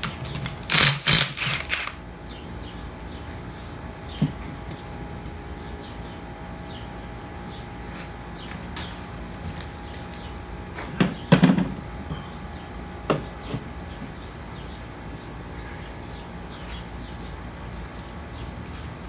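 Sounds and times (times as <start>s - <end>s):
tools clanking and knocking: 0.0s - 2.0s
steady background hum: 0.0s - 19.0s.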